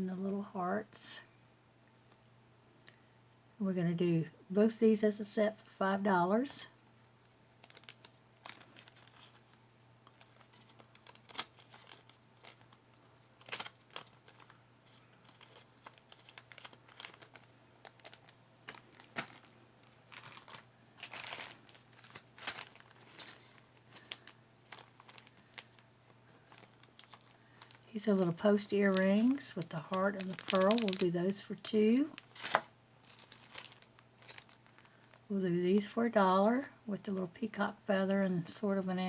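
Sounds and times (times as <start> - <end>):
packaging crinkling and rustling: 6.7 - 35.3.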